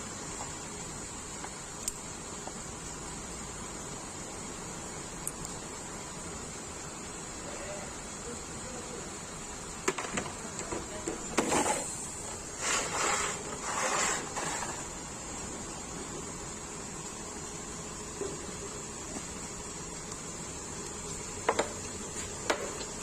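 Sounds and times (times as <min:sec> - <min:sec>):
steady high hiss: 0:00.0 - 0:23.0
rasping scraping noises: 0:11.4 - 0:15.0.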